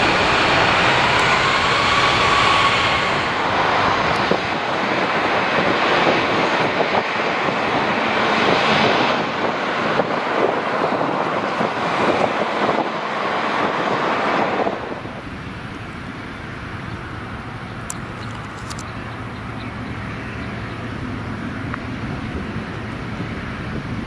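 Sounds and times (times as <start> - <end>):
jet engines roaring: 0.0 - 24.0
wind on microphone: 0.0 - 24.0.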